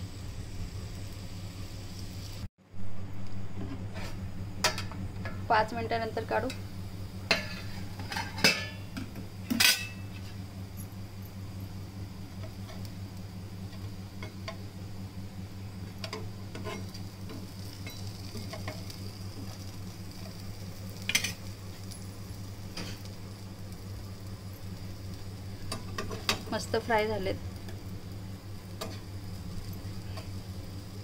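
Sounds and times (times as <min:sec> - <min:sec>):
slices sizzling in oil: 0:00.0 - 0:02.5, 0:03.3 - 0:31.0
low hum: 0:00.0 - 0:31.0
steel spatula clicks and scrapes: 0:16.0 - 0:19.0, 0:21.0 - 0:22.0.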